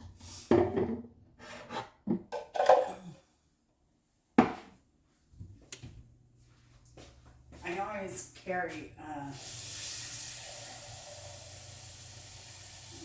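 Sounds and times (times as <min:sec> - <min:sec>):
kitchen utensils clattering: 0:00.5 - 0:03.1.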